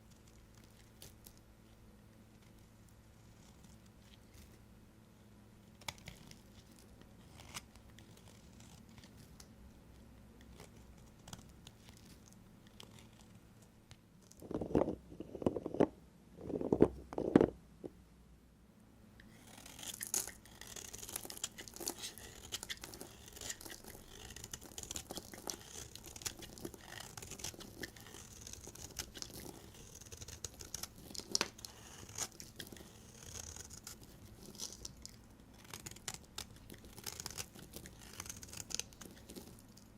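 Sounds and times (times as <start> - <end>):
knife scraping through soap: 7.3 - 9.1, 19.2 - 35.0, 35.6 - 39.6.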